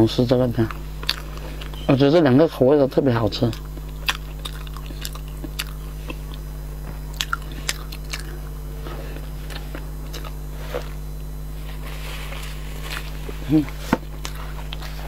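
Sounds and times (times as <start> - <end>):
low electrical hum: 0.0 - 15.0
chewing with wet mouth clicks: 0.6 - 1.9, 3.4 - 6.5, 7.1 - 8.6, 9.4 - 10.9, 14.2 - 15.0.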